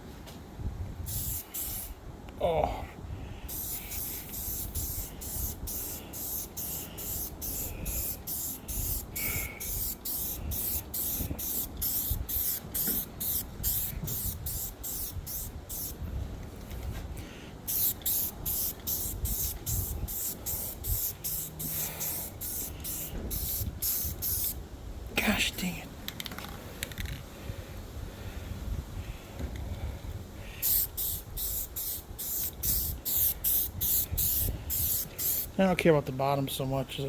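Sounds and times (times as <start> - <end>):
spray paint can hissing: 1.1 - 2.0, 3.5 - 16.0, 17.6 - 24.6, 30.6 - 35.6.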